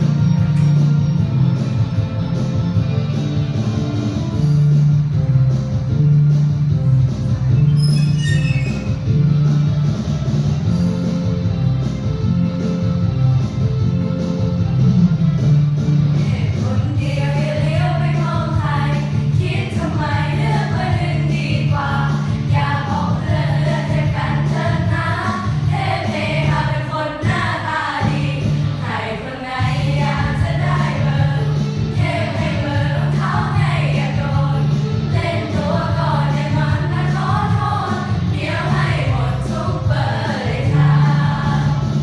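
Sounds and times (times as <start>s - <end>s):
musical accompaniment: 0.0s - 42.0s
girls singing together: 16.4s - 42.0s.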